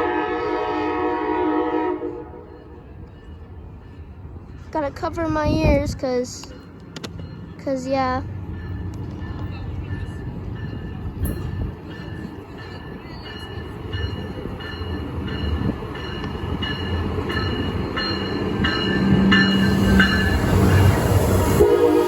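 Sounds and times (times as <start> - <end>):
train rumble: 0.0 - 22.0
bell ringing: 8.6 - 21.2.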